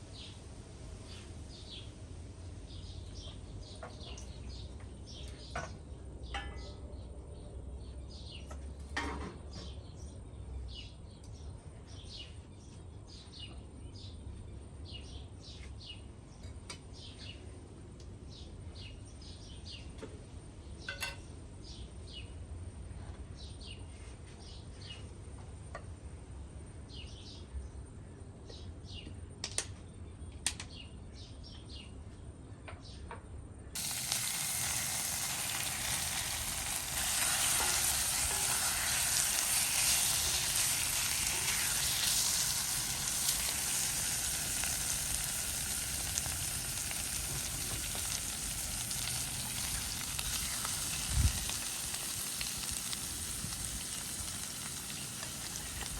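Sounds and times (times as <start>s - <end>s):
food sizzling in hot oil: 33.8s - 55.9s.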